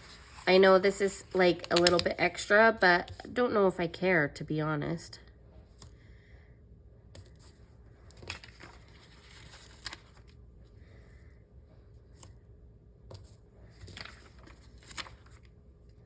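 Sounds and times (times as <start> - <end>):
paper crinkles and taps: 8.1 - 10.4.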